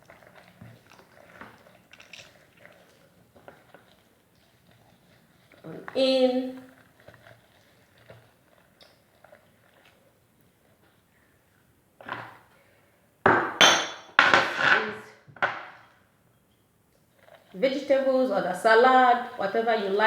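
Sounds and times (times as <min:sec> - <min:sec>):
faint kitchenware knocks: 0:13.3 - 0:15.8.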